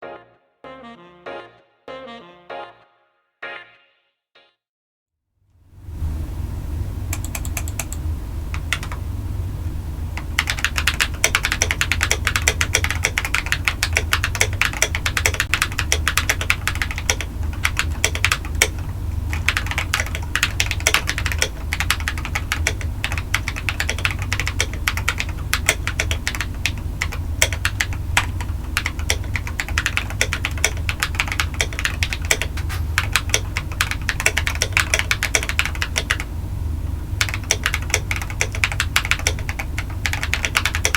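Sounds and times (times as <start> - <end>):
steady low hum: 5.6 - 40.9
typing on mechanical keyboard: 7.1 - 8.0, 8.6 - 9.0, 10.2 - 36.3, 37.2 - 40.9.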